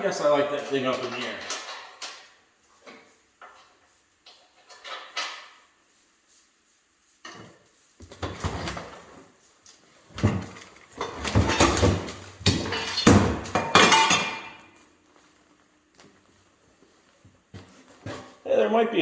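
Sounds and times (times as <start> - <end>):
metal parts knocking and scraping: 0.4 - 5.6, 10.2 - 14.6.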